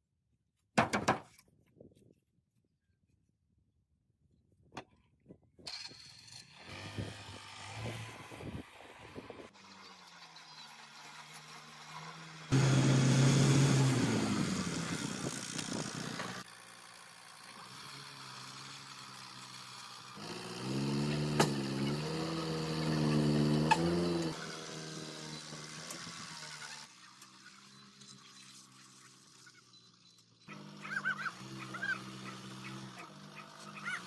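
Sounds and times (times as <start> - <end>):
vehicle engine running: 12.2 - 26.4.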